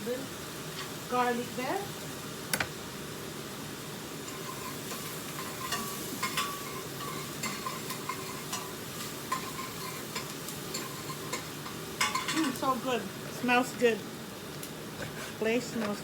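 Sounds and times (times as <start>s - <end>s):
onions sizzling in oil: 0.0s - 16.0s
utensil scraping pot: 4.2s - 12.9s.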